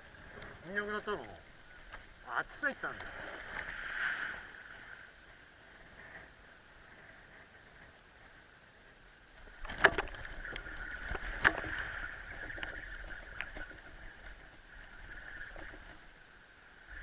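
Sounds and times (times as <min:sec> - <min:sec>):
water sloshing and splashing: 0:00.0 - 0:05.4, 0:09.4 - 0:16.3.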